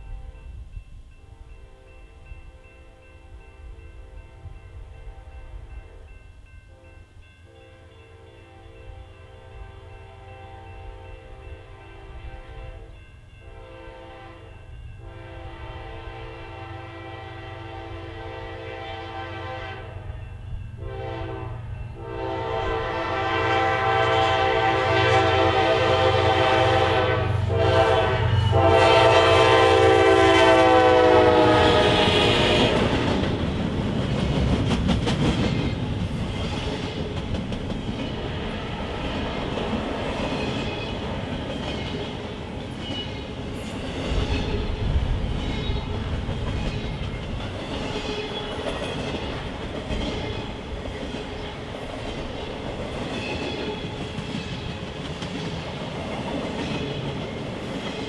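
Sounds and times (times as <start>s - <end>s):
locomotive air horn: 8.2s - 20.1s, 20.8s - 33.1s
wheels clacking over rail joints: 32.3s - 58.0s.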